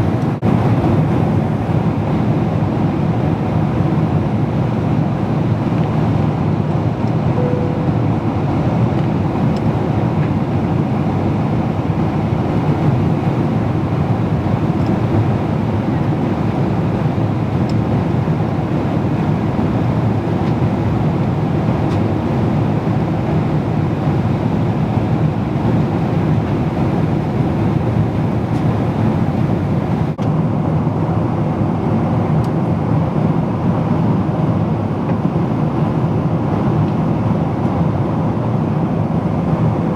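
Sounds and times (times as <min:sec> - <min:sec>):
jet airliner cabin rumble: 0:00.0 - 0:39.9
short faint tone: 0:07.4 - 0:08.7.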